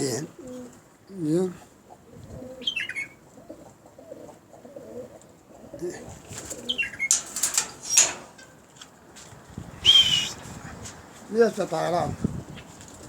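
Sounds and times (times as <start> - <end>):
pigeons cooing: 0.0 - 8.4.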